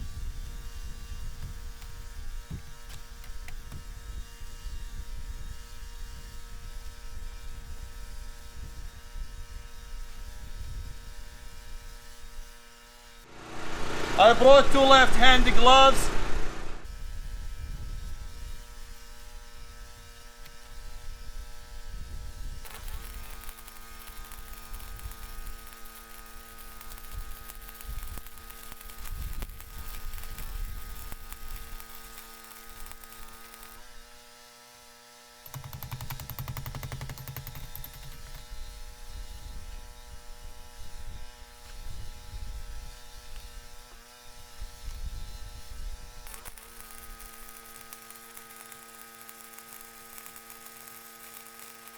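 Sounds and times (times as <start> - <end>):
wind rumble on microphone: 0.0 - 12.5, 16.2 - 23.0, 38.4 - 43.8, 44.4 - 46.2
welding machine electrical hum: 0.0 - 15.4, 16.6 - 51.9
loud buzz: 21.6 - 34.0, 45.0 - 51.9.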